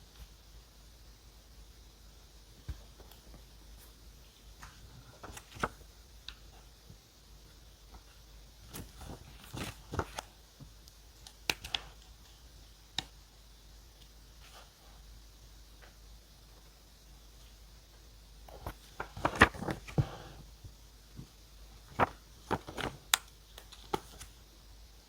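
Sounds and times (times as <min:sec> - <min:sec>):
paper and stationery handled: 0:04.6 - 0:05.8, 0:08.7 - 0:10.3, 0:18.5 - 0:20.3, 0:21.8 - 0:24.4.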